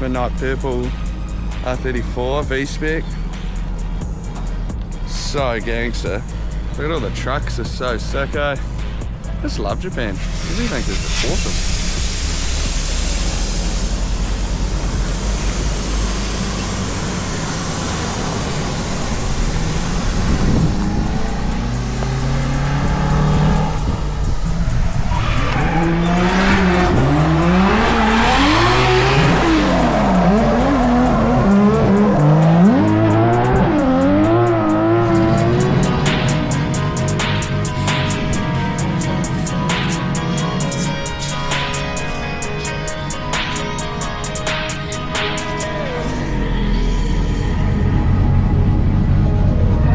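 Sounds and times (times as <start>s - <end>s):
car engine revving: 0.0s - 49.9s
steady rush of noise: 9.8s - 49.9s
tyre squeal: 21.8s - 27.2s.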